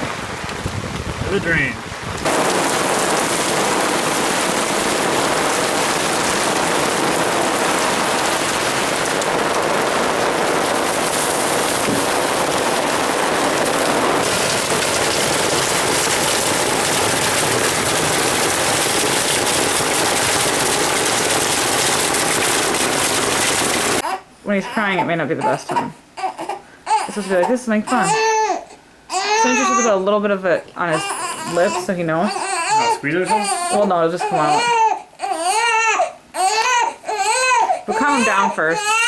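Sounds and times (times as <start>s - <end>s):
heavy rain splashing: 0.0s - 24.0s, 30.9s - 34.8s.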